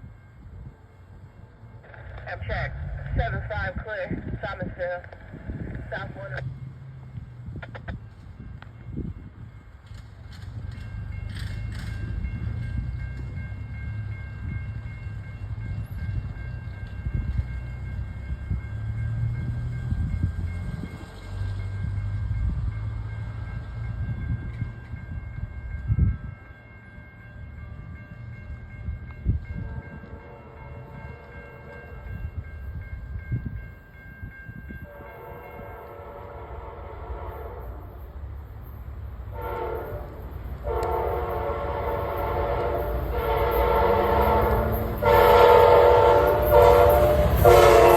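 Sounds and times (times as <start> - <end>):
train rumbling: 0.0 - 47.9
train horn chord blast: 29.5 - 32.1, 34.8 - 38.0, 39.3 - 47.9.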